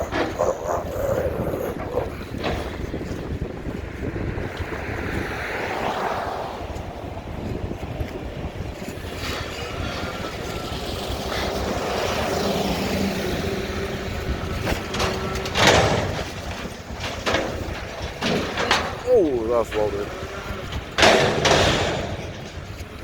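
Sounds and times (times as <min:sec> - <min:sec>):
garbage truck engine and hydraulics: 0:00.0 - 0:23.0
sharp knocks: 0:14.5 - 0:23.0.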